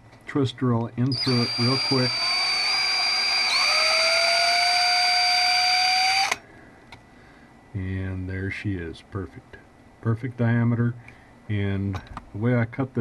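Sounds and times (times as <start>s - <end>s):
power drill whining: 1.1s - 6.4s.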